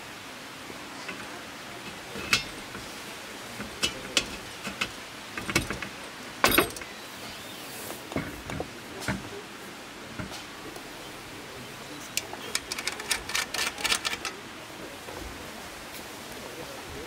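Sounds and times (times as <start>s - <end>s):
steady background hiss: 0.0s - 17.0s
objects clicking and knocking: 1.0s - 6.9s, 12.1s - 14.4s.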